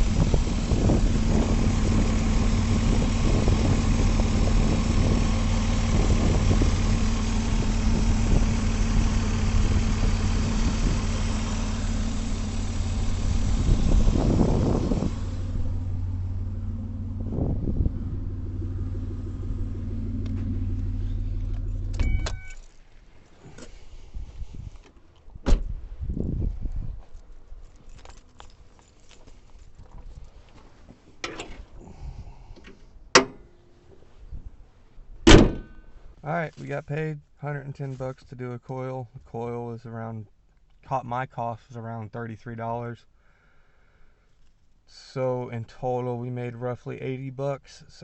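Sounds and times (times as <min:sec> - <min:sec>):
car engine idling: 0:00.0 - 0:24.1.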